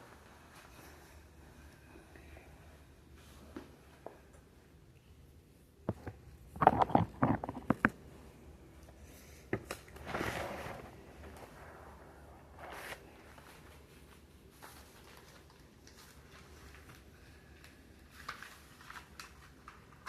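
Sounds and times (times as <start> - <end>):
rustling scrape: 10.0 - 16.8.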